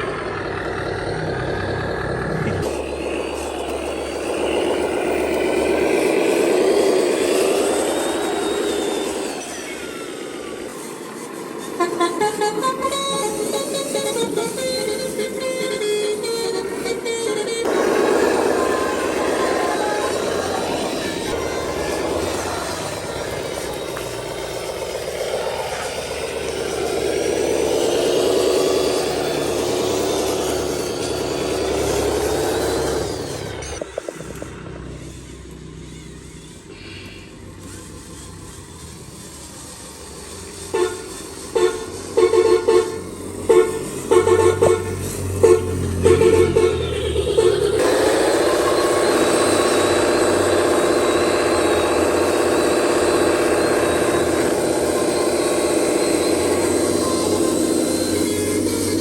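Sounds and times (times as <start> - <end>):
truck diesel engine revving: 0.0 - 59.0
vehicle horn toots: 11.6 - 20.6, 40.7 - 48.0.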